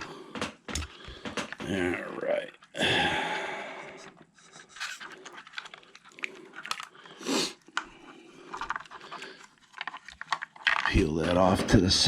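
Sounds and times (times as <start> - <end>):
hands clicking plastic parts: 0.0 - 2.8, 4.0 - 7.0, 7.6 - 12.0.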